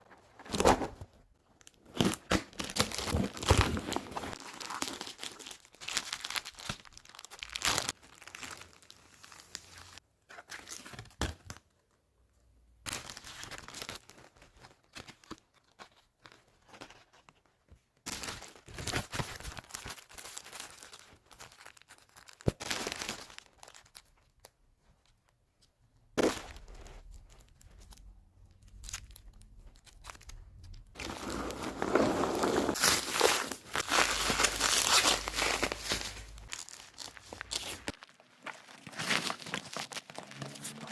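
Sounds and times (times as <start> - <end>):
packaging tearing and crinkling: 1.6 - 10.0, 31.0 - 40.9.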